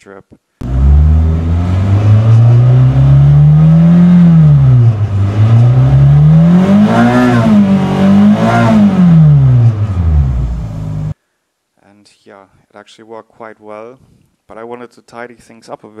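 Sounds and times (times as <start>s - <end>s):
car engine revving: 0.6s - 11.2s.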